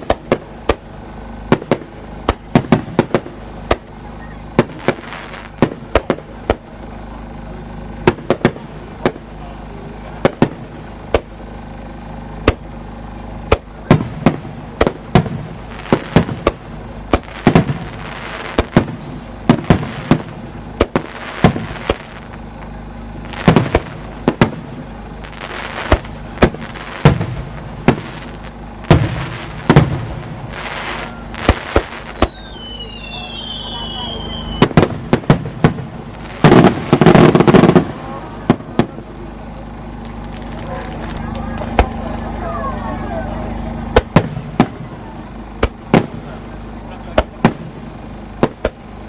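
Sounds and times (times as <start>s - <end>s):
fireworks shells bursting: 10.0s - 42.4s.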